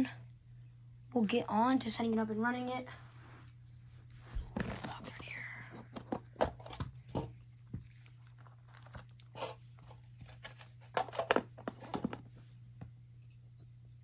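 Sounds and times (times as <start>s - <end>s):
plastic wrapping crinkling: 7.9s - 12.2s.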